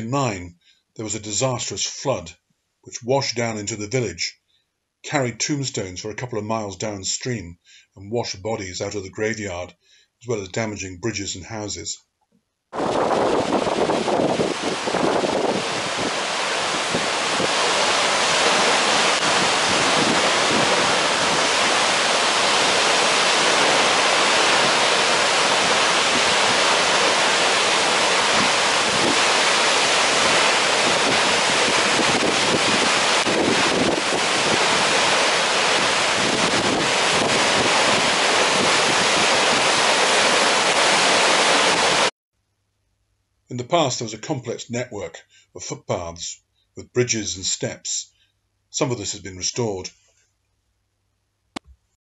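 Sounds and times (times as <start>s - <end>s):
waterfall roaring: 12.8s - 42.1s.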